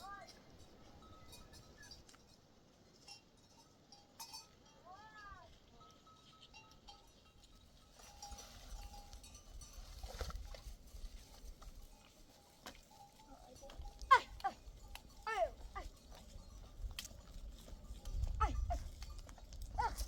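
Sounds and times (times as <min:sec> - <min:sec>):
goat bells clinking: 0:00.0 - 0:20.0.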